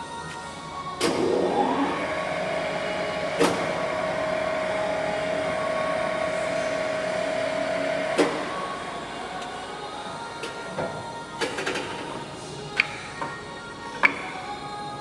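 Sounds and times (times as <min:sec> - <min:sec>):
lathe spindle whine: 0:00.0 - 0:12.8.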